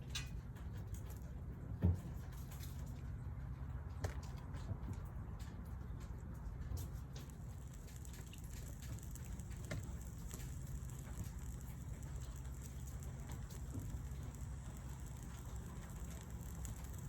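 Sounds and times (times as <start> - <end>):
campfire crackling and popping: 5.9 - 17.0.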